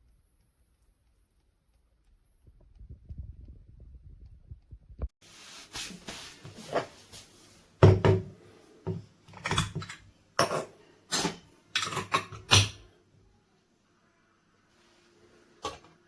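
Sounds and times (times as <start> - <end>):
hard objects knocking: 7.8 - 8.3.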